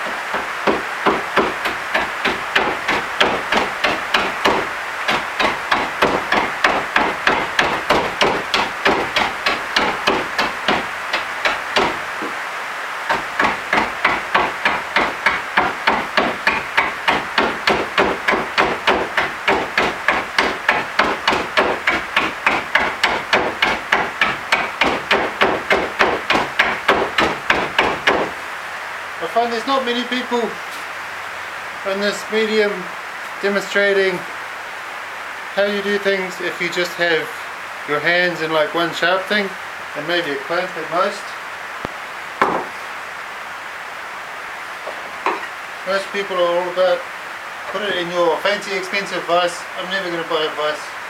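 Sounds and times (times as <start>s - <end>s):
hammering on wood: 0.0s - 12.4s, 13.1s - 28.4s, 42.4s - 42.8s, 44.9s - 45.5s.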